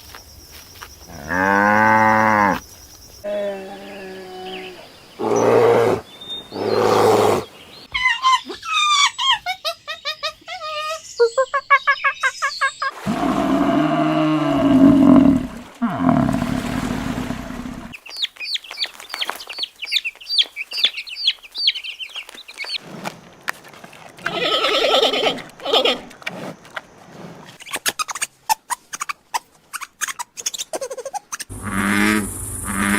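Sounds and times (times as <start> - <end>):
animal calls: 3.3 - 12.4.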